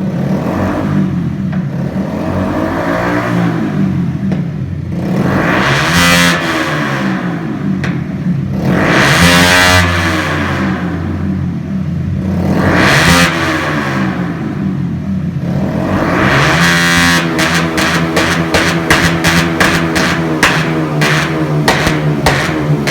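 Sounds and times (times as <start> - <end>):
motorcycle engine revving: 0.0 - 22.9
exhaust pops: 16.6 - 22.9.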